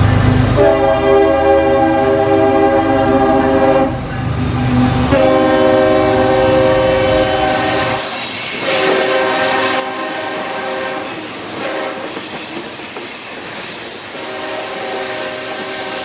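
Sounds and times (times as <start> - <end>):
freight train rumble: 0.0 - 16.0
locomotive air horn blasts: 0.6 - 4.0, 4.7 - 12.1, 14.1 - 16.0.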